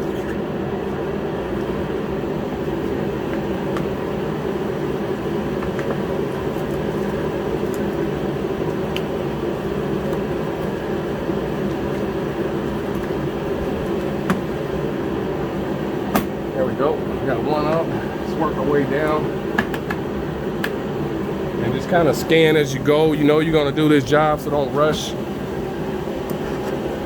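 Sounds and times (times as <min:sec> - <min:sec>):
car heater humming: 0:00.0 - 0:27.0.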